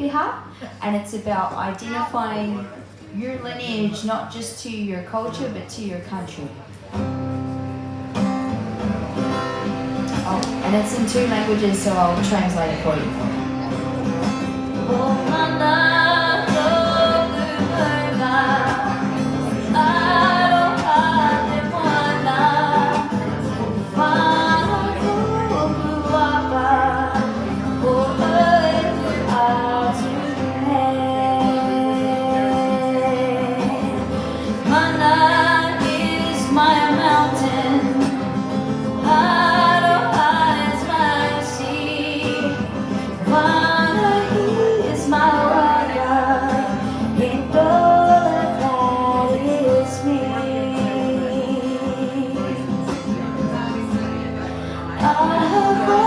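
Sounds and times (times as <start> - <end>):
guitar accompaniment: 6.2 - 56.0
woman singing: 10.2 - 13.4, 14.7 - 56.0.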